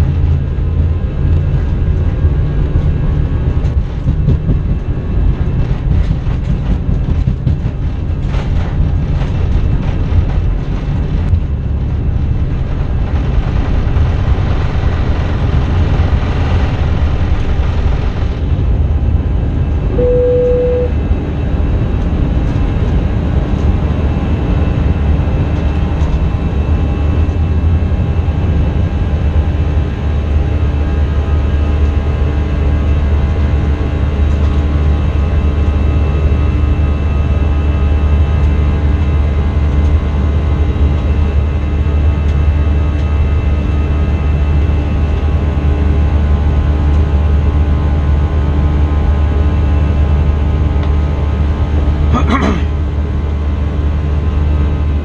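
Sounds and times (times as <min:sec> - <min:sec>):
aircraft cabin rumble with rattling: 0:00.0 - 0:55.0
short tone: 0:19.9 - 0:21.0.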